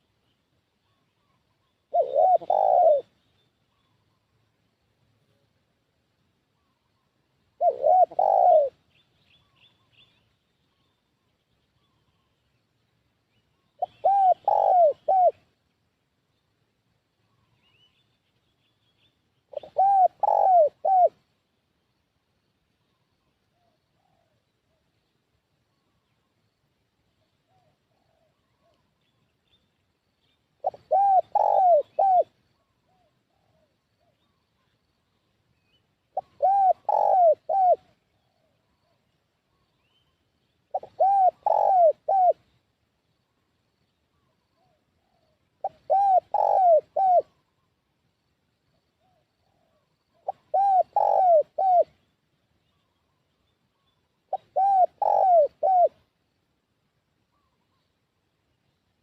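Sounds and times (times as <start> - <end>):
faint bird calls: 0.0 - 5.6, 6.4 - 15.7, 17.1 - 56.3, 57.2 - 59.0
dove cooing: 0.9 - 3.2, 7.6 - 8.8, 13.8 - 15.5, 19.5 - 21.2, 30.6 - 34.4, 36.1 - 39.0, 40.7 - 42.5, 44.2 - 47.6, 49.0 - 52.0, 54.3 - 56.1.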